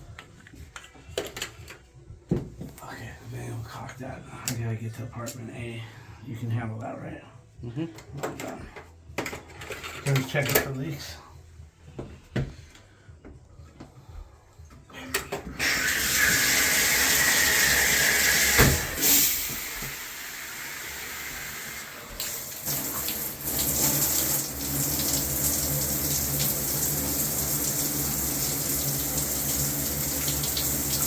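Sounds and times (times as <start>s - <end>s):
water rushing from shower valve: 15.6s - 31.0s.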